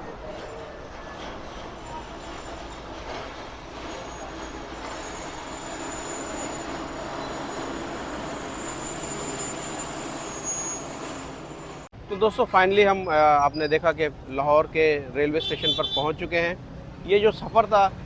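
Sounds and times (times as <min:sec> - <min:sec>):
high wheel squeal: 0:00.0 - 0:11.9, 0:12.8 - 0:14.0
train rumbling on rails: 0:00.0 - 0:11.9.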